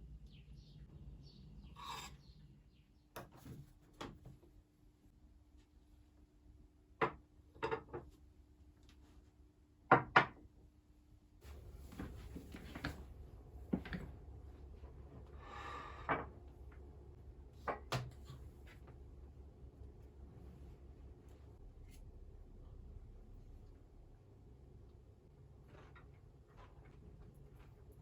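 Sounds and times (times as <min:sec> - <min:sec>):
low steady hum: 0:10.9 - 0:28.0.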